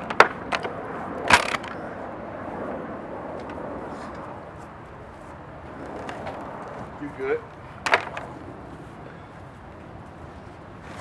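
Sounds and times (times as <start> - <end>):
outdoor background noise: 0.0 - 11.0
sharp knocks: 7.8 - 8.3.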